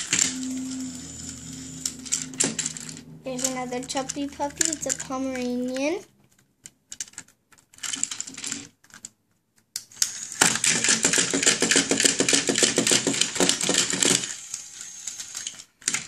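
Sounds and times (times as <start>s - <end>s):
toy dog motor and feet clattering: 0.0s - 6.4s, 9.8s - 16.0s.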